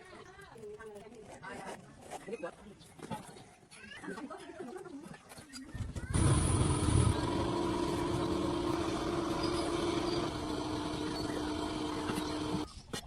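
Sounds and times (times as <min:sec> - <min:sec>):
machine droning: 0:06.1 - 0:12.7.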